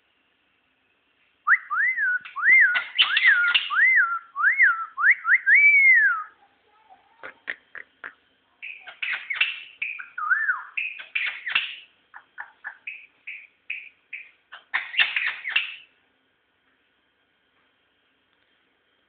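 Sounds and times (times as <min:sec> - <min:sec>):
songbird chirping: 0:01.2 - 0:16.0.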